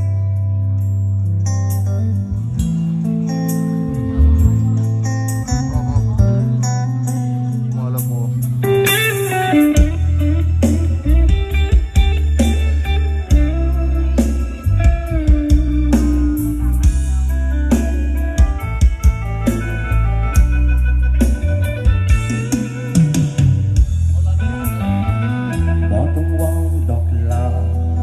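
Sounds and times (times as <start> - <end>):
electric guitar lead line: 0.0 - 28.0
live band playing loud: 0.0 - 28.0.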